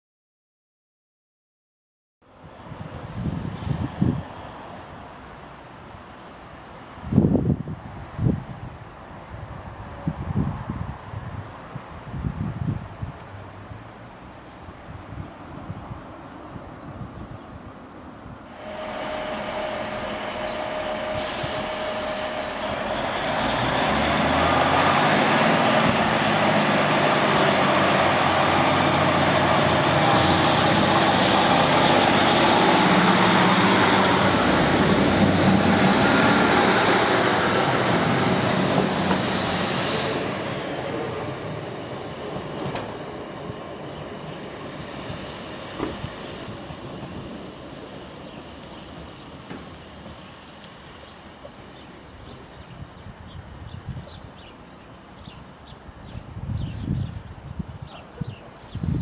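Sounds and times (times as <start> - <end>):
train rumble: 18.2 - 52.9
high whine rising in pitch: 18.5 - 42.2.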